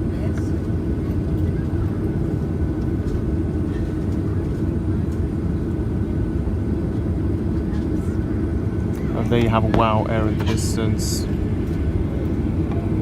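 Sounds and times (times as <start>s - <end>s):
airplane cabin low rumble: 0.0s - 13.0s
thin steady whine: 7.3s - 13.0s.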